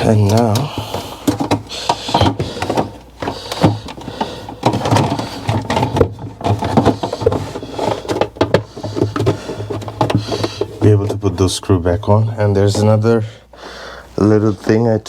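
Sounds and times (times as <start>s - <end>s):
clicks knocks and rattles: 0.0s - 11.2s.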